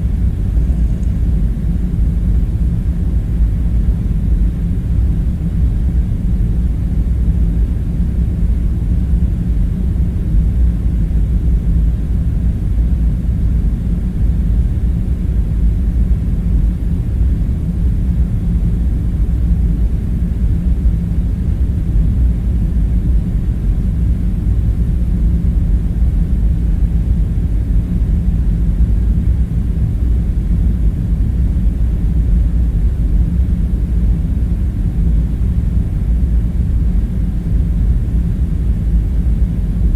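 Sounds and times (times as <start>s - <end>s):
low rumbling drone: 0.0s - 15.6s
faint hum: 0.0s - 39.9s.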